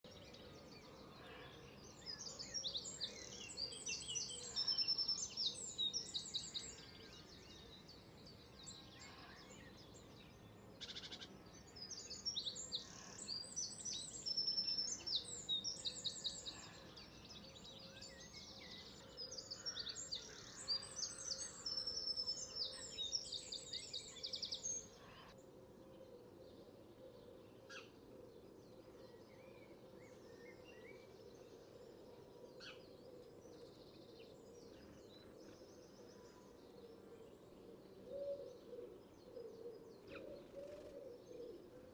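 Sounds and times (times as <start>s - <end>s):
songbird singing trills: 0.0s - 25.2s.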